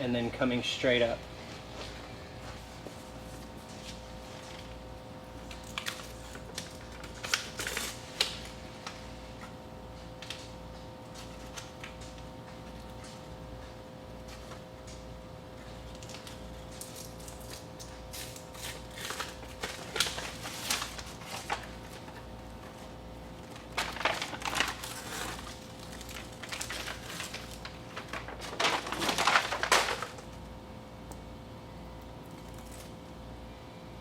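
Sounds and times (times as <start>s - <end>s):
matting crinkling and crunching: 18.4s - 30.4s.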